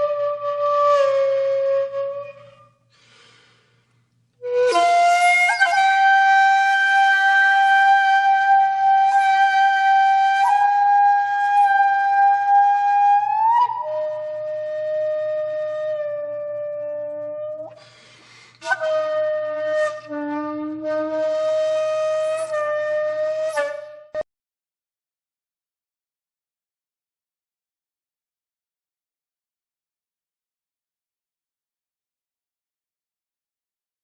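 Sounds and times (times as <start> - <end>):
solo flute long notes: 0.0 - 2.8, 4.4 - 18.0, 18.6 - 24.3.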